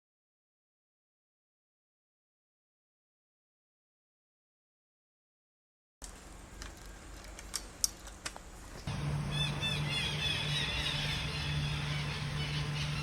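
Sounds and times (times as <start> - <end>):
steady low hum: 6.0 - 13.0
high bird chirps: 9.2 - 13.0.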